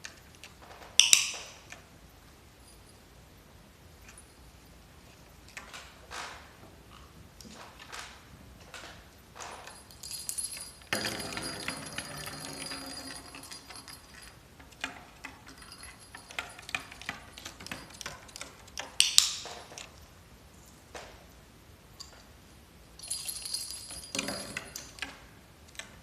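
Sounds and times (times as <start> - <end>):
small metal objects jingling: 9.5 - 18.6, 23.0 - 25.0.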